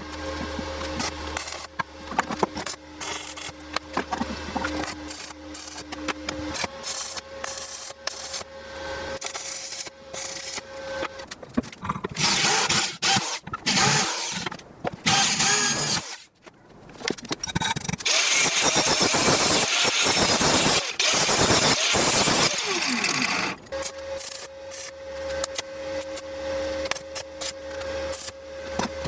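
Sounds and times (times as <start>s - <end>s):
power tool working wood: 12.2s - 14.4s, 15.1s - 16.2s, 18.0s - 23.7s.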